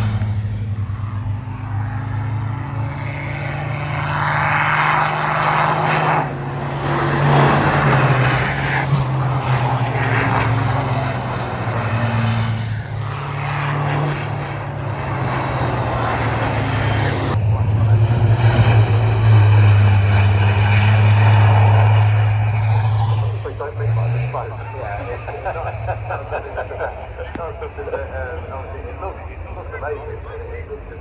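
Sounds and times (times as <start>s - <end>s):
truck diesel engines droning: 0.0s - 31.0s
trucks passing by: 0.0s - 31.0s.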